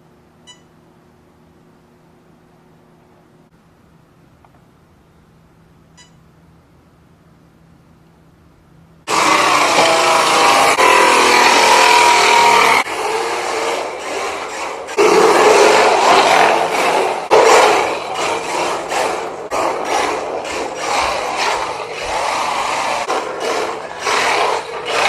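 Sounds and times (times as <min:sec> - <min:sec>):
electric motor whining: 0:09.1 - 0:18.9.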